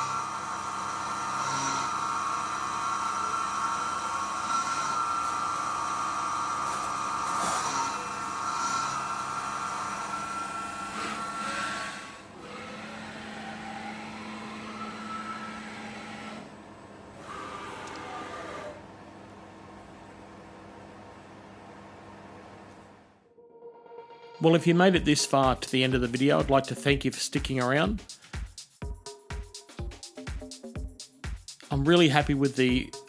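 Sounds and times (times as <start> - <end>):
milling machine whining: 0.0 - 19.3.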